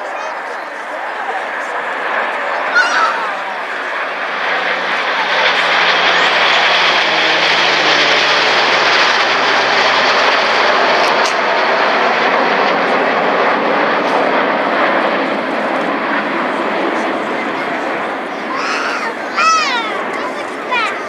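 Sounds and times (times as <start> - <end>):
jet aircraft flying past: 0.0 - 21.0.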